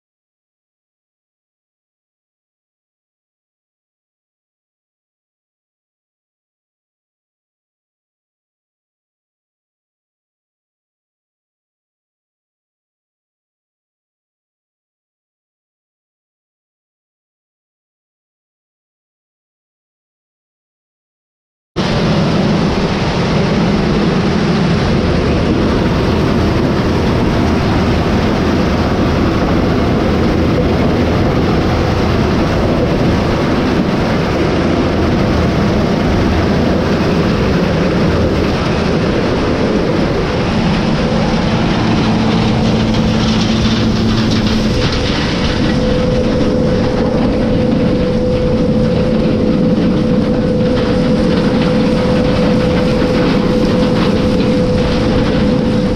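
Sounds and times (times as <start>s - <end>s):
heavy farm machinery rumbling: 21.8s - 55.9s
steady whine: 21.8s - 55.9s.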